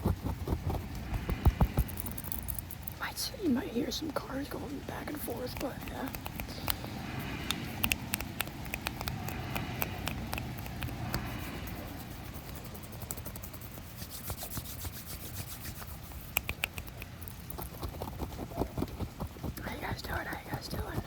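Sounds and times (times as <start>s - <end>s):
rubbing and scratching on microphone: 0.0s - 21.0s
small clicks and crackles: 0.0s - 21.0s.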